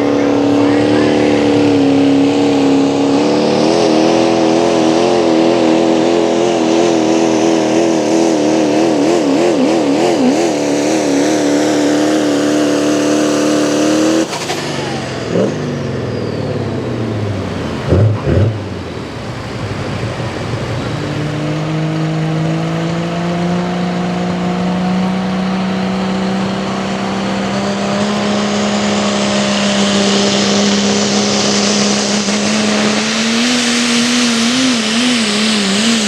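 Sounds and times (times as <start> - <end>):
diesel truck engine at full throttle: 0.0 - 36.0
high whine winding down: 0.0 - 36.0.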